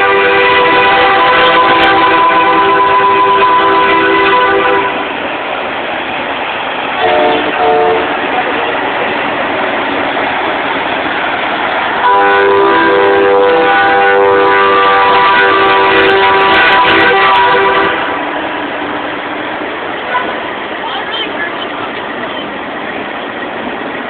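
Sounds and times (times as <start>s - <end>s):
truck air horns blasting: 0.0s - 5.1s, 7.0s - 8.2s, 12.0s - 18.3s
rushing background noise: 0.2s - 24.0s.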